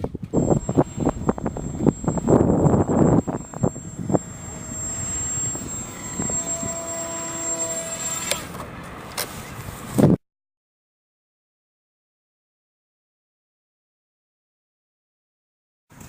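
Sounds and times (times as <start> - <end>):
wind: 0.0 - 10.2
model plane motor whining: 0.3 - 8.7.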